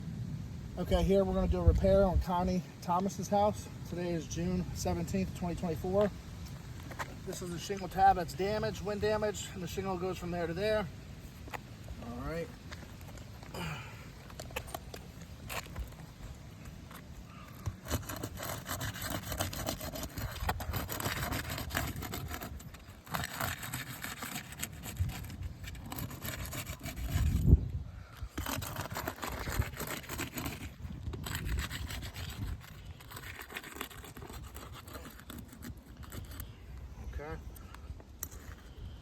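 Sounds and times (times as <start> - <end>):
scraping on roof shingles: 12.5 - 27.4, 28.2 - 36.4.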